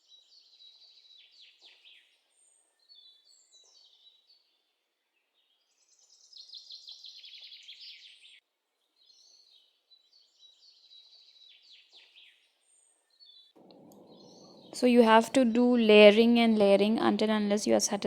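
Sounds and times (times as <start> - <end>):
birds chirping: 13.6 - 18.0
rapid repeated bird notes: 13.6 - 18.0.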